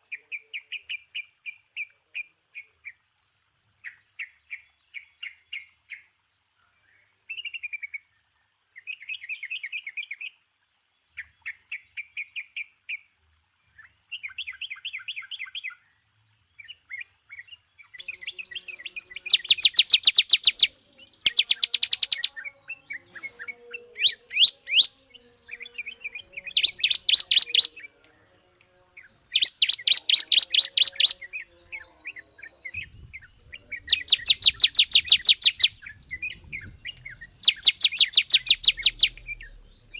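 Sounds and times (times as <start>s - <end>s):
songbirds trilling: 13.7s - 39.9s.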